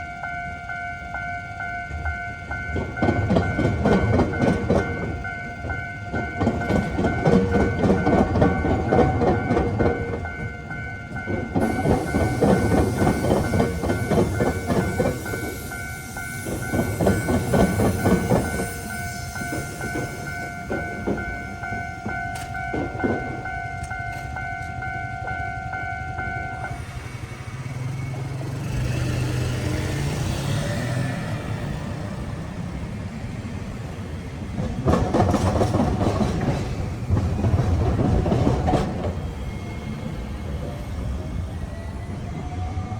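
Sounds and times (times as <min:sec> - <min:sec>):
level crossing warning bell: 0:00.0 - 0:32.6
train wheels clattering over rails: 0:02.5 - 0:42.9.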